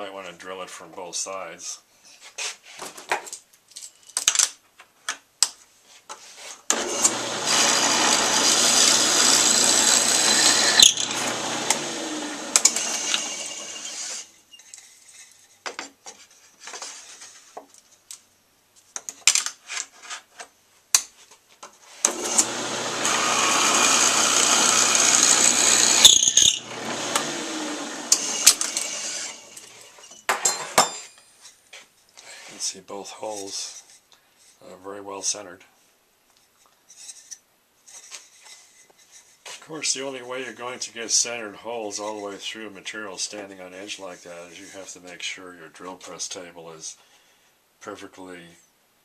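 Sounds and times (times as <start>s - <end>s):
drill press boring into wood: 6.7s - 14.3s, 22.0s - 29.7s.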